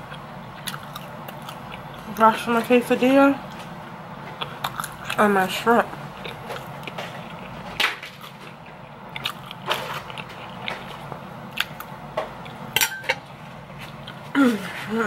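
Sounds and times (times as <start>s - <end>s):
person chewing food: 0.0s - 2.2s, 3.5s - 5.3s, 6.0s - 14.3s
wet mouth clicks and crunches: 4.3s - 5.2s, 6.2s - 12.6s.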